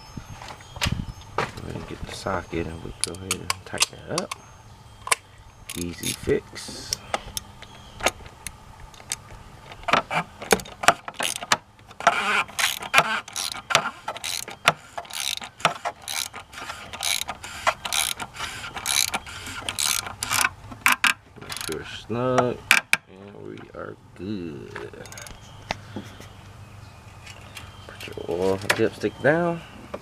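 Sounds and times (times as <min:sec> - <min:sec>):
socket ratchet clicking: 0:10.5 - 0:21.8, 0:25.0 - 0:25.4.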